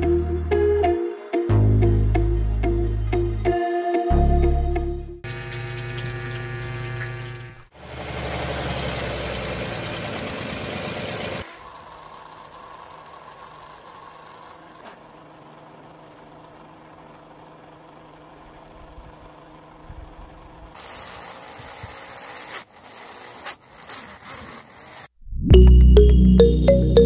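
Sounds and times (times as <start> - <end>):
small motor humming: 5.2 - 25.2.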